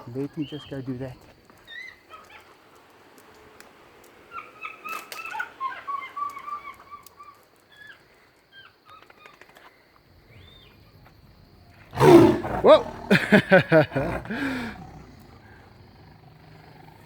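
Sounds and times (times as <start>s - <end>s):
faint clicks: 0.3s - 10.1s.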